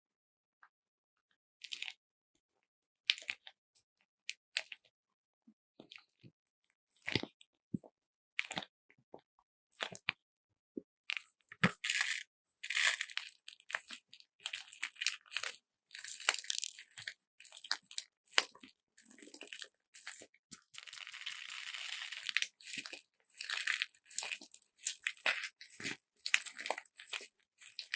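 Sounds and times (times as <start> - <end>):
slime bag being squeezed: 19.1 - 27.9.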